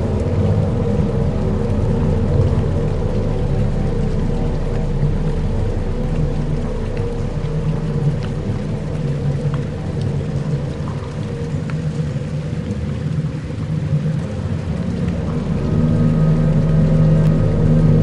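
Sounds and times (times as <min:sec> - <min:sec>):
dark ambient drones: 0:00.0 - 0:18.0
faint ticks: 0:01.6 - 0:15.5.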